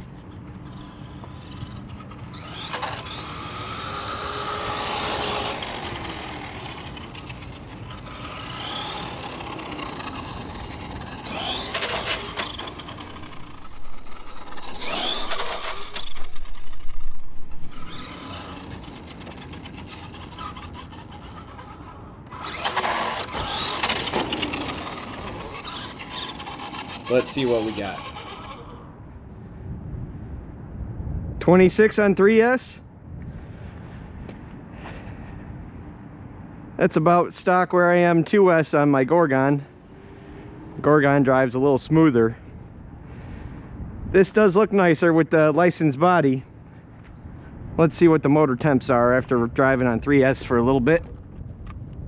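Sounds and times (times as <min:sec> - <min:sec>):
electric motor whining: 0:00.6 - 0:21.5, 0:22.3 - 0:28.9
tyre noise: 0:05.6 - 0:28.5.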